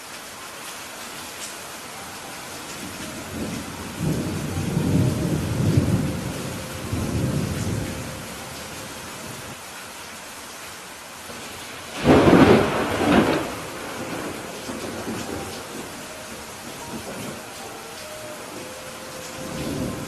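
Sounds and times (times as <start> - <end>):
rain hissing: 0.0 - 20.0
thunder rumbling: 2.7 - 9.6, 11.4 - 20.0.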